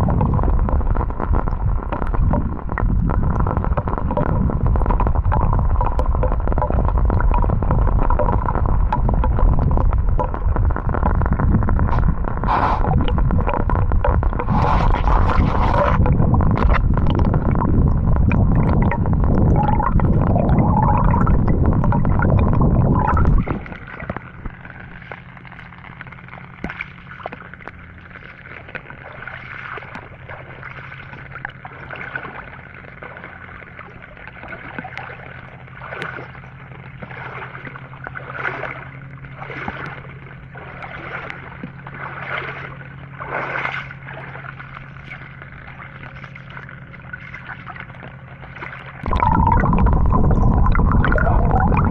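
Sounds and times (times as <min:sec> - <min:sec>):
low rumbling rush: 0:00.0 - 0:26.3, 0:48.8 - 0:51.9
soft water splashes: 0:00.0 - 0:51.9
steady low hum: 0:00.0 - 0:51.9
water sloshing and gurgling: 0:00.0 - 0:51.9.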